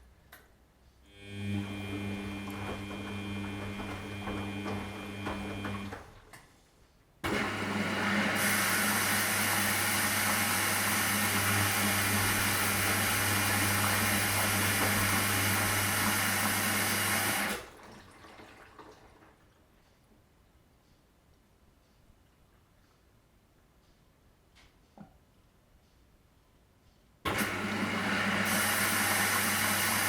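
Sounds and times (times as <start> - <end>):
washing machine motor hum: 1.1 - 6.4, 7.2 - 19.6, 27.3 - 30.0
water rushing through machine: 27.3 - 30.0.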